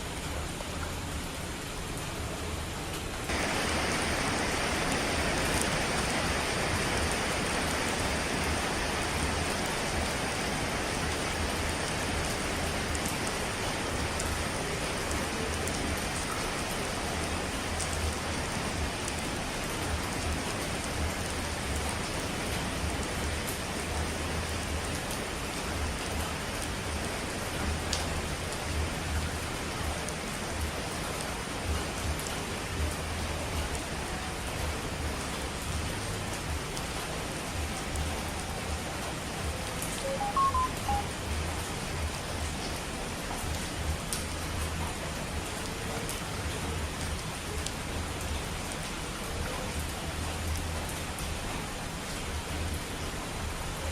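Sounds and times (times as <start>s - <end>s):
falling water rushing: 0.0s - 53.9s
water drops ticking: 40.0s - 41.2s.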